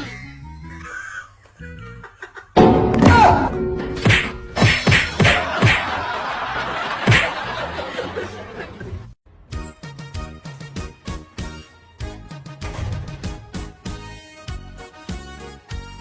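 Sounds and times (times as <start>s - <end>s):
sharp thuds and whacks: 2.6s - 5.9s, 7.0s - 7.4s.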